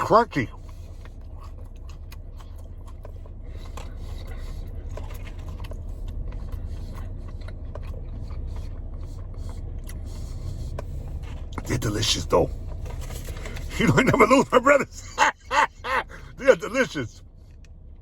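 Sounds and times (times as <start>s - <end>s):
person chewing crunchy food: 0.5s - 11.8s.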